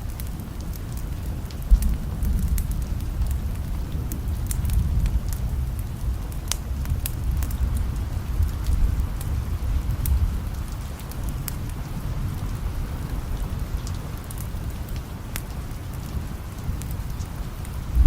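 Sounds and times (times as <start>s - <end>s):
steady rain: 0.0s - 18.0s
distant thunder rumble: 1.5s - 10.6s.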